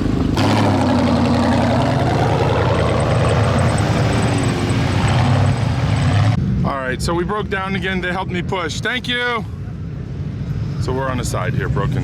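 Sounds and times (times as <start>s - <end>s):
vehicle engine running: 0.0s - 6.4s.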